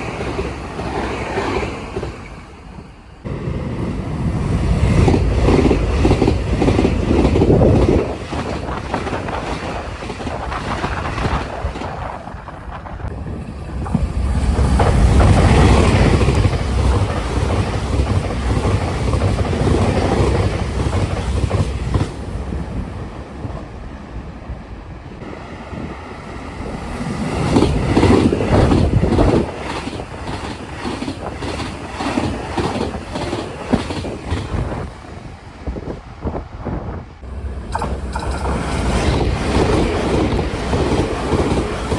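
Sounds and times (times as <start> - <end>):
electric trains passing at speed: 0.0 - 41.9
wind buffeting microphone: 0.0 - 41.9
wheels clattering over rail joints: 37.3 - 41.9.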